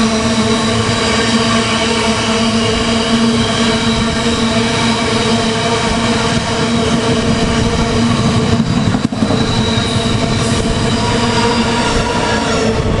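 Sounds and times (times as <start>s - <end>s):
steady train whine: 0.0s - 13.0s
train wheels rumbling on rails: 0.0s - 13.0s.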